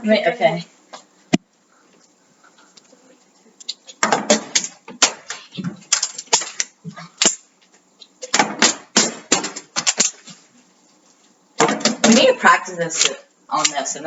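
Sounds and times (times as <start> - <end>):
plastic bottles knocking on metal: 11.6 - 12.2.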